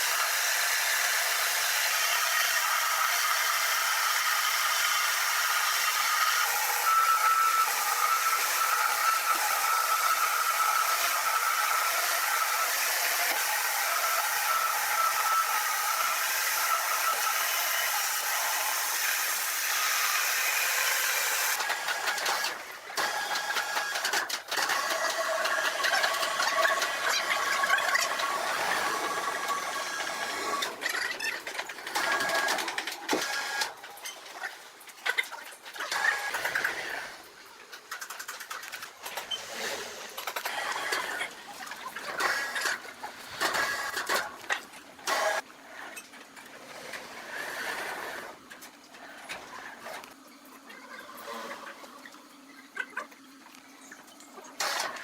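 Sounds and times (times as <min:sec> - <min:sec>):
sawmill machinery whining: 0:00.0 - 0:33.7.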